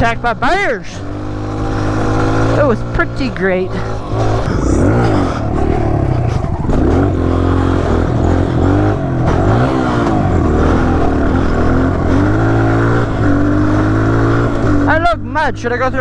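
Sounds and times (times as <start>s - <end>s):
dirt bike engine revving: 0.0s - 15.1s.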